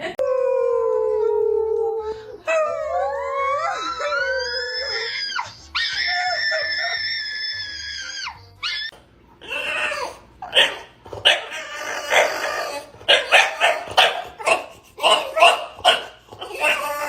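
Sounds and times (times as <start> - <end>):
dog whining: 2.3 - 17.0
dog barking and yipping: 9.5 - 17.0.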